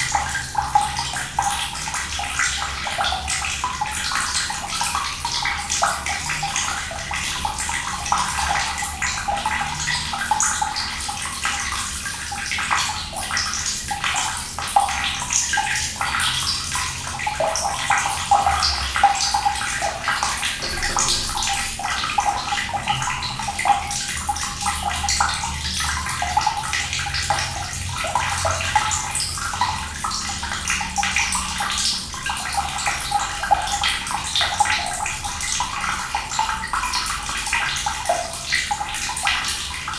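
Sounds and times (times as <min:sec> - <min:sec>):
running water splashing: 0:19.5 - 0:24.6.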